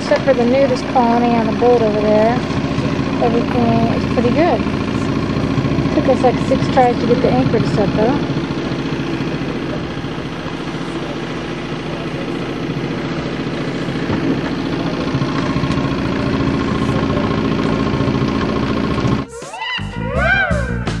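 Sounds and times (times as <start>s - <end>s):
boat engine idling: 0.0s - 21.0s.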